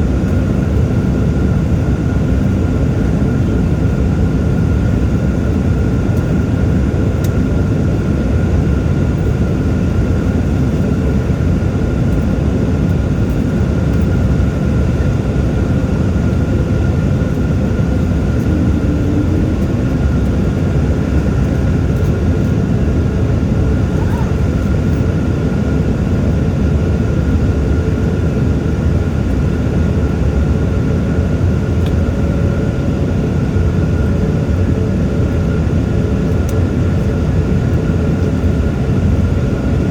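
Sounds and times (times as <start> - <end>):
jet engine and airflow noise in cabin: 0.0 - 39.9
faint steady high tone: 18.4 - 20.8.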